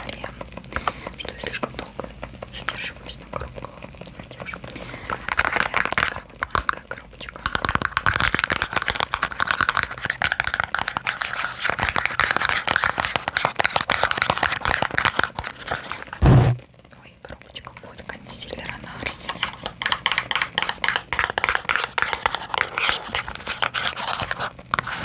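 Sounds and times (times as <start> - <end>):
fast tapping on small boxes: 7.4 - 15.9, 19.4 - 24.5.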